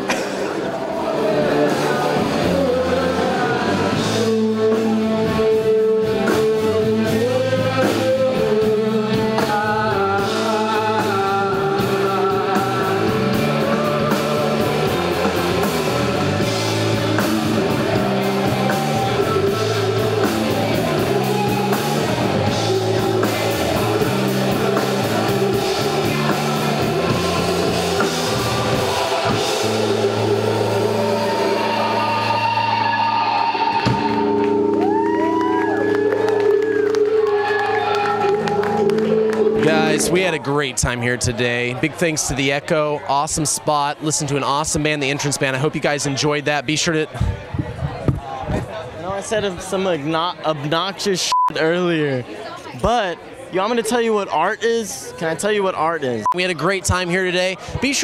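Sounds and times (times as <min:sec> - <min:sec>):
drum kit: 0:00.0 - 0:37.2, 0:38.2 - 0:41.0
person singing: 0:00.0 - 0:40.2
electric guitar: 0:00.0 - 0:40.3.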